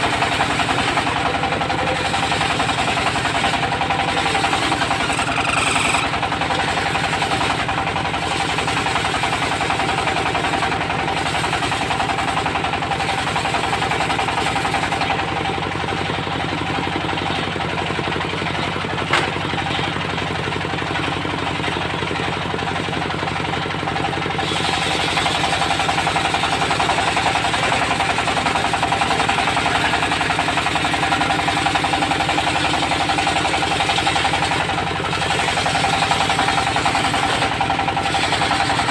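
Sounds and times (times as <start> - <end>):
saw blade whine: 0.0 - 17.6, 24.4 - 38.9
diesel engine running: 0.0 - 38.9
hiss of sawing wood: 24.4 - 25.8.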